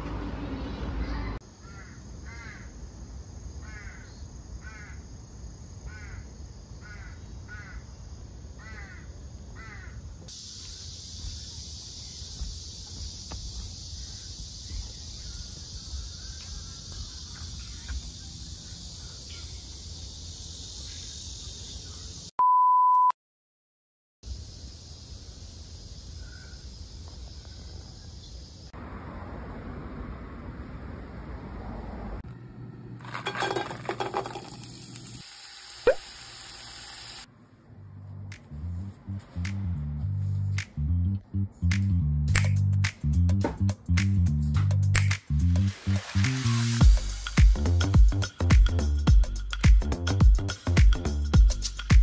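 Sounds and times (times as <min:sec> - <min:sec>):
high-pitched outdoor hiss: 0:01.4 - 0:22.3, 0:24.2 - 0:29.0, 0:33.2 - 0:37.3, 0:44.3 - 0:52.0.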